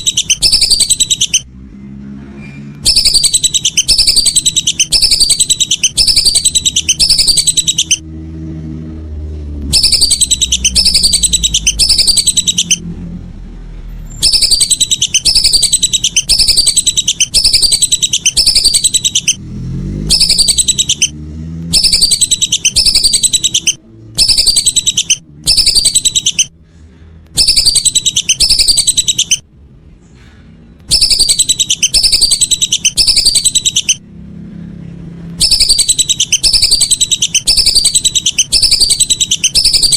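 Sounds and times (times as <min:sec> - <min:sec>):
whistling duck calls: 0:00.0 - 0:01.4, 0:02.8 - 0:08.0, 0:09.7 - 0:12.8, 0:14.2 - 0:19.4, 0:20.0 - 0:21.1, 0:21.7 - 0:26.5, 0:27.4 - 0:29.4, 0:30.9 - 0:34.0, 0:35.4 - 0:39.9.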